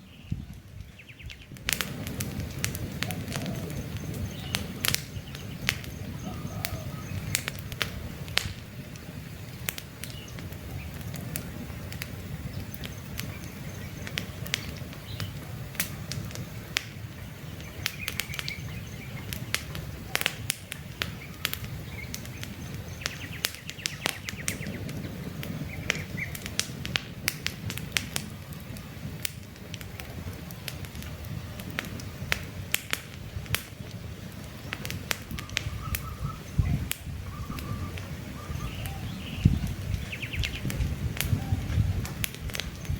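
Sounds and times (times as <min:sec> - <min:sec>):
burning wood crackling and popping: 0:00.0 - 0:42.9
low rumble of flames: 0:00.0 - 0:42.9
faint bird chirps: 0:03.0 - 0:07.4, 0:35.4 - 0:41.7.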